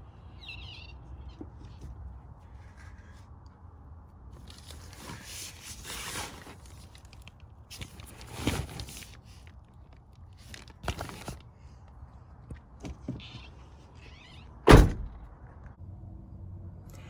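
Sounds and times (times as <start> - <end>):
rustling and scraping: 4.3 - 11.8.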